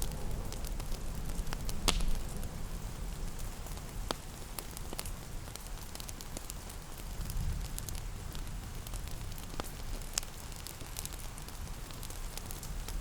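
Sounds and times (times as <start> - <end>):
fireplace crackling and popping: 0.0 - 13.0
soft rain: 0.0 - 13.0.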